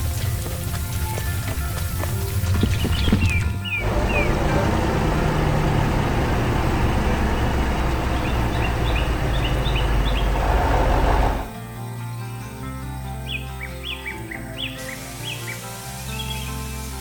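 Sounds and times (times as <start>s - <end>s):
heavy vehicle engine rumbling: 3.8s - 11.5s.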